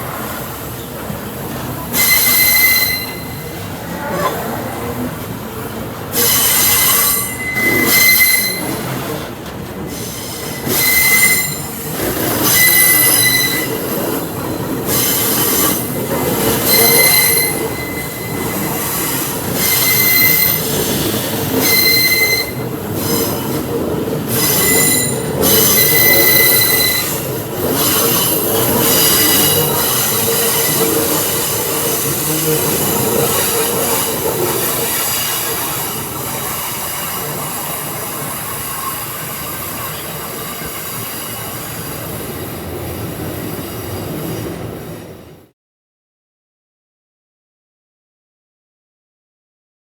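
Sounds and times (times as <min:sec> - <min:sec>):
freight train wagons rumbling: 0:00.0 - 0:45.4
train wheels squealing: 0:01.9 - 0:03.6, 0:06.1 - 0:09.2, 0:09.9 - 0:42.6.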